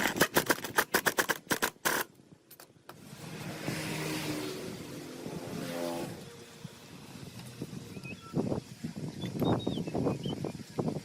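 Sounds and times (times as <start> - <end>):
vehicle engine revving: 3.0 - 7.7.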